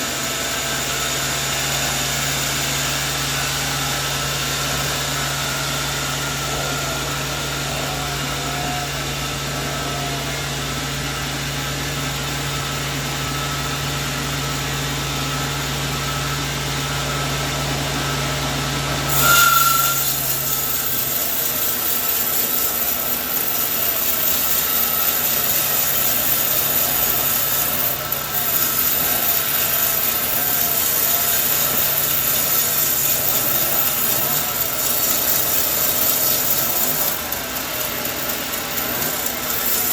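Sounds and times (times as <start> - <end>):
sawmill saw cutting wood: 19.1 - 39.9.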